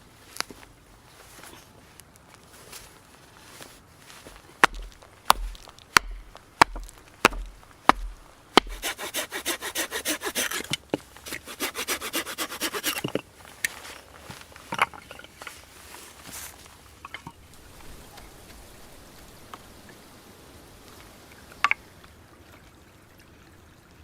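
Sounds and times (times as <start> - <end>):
sharp knocks on wood: 4.6 - 9.3
hand saw cutting wood: 4.6 - 13.2.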